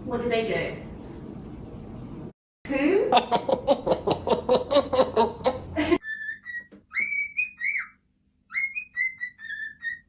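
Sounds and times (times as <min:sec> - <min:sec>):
parrot whistling: 0:06.0 - 0:10.0.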